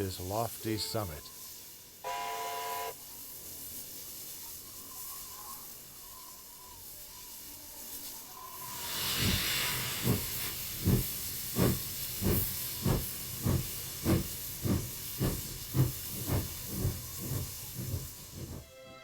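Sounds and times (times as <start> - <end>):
steam hiss: 0.0 - 18.9
steam locomotive exhaust chuffs: 8.6 - 18.8.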